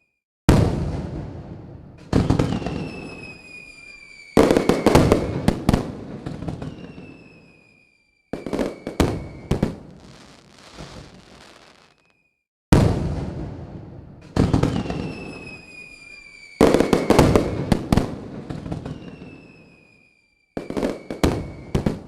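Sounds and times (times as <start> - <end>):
fireworks bangs and crackling: 0.5 - 22.0
high falling whistle: 2.5 - 5.5, 6.5 - 12.4, 14.7 - 17.6, 18.5 - 21.9.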